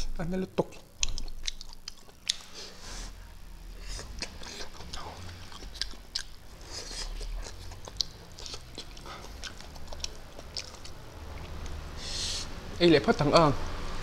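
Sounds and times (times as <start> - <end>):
wet mouth clicks: 0.7 - 2.5, 4.1 - 11.8
crisp crunches of chewing: 1.0 - 2.8, 3.9 - 11.8.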